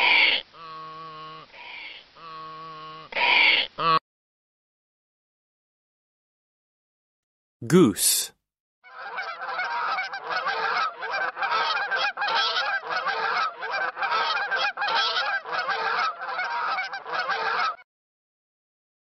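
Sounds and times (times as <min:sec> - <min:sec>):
geese honking: 0:08.9 - 0:17.8.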